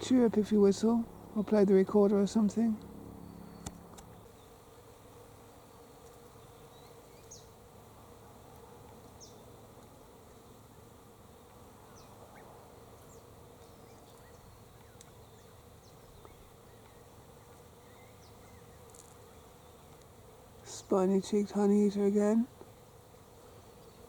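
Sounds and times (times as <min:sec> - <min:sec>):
faint steady hum: 0:00.0 - 0:24.0
high bird chirps: 0:03.2 - 0:03.8.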